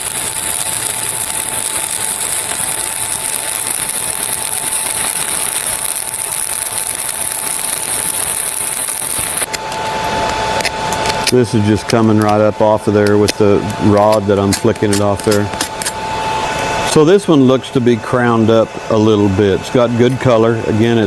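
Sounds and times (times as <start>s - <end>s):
welding arc crackling hiss: 0.0s - 21.0s.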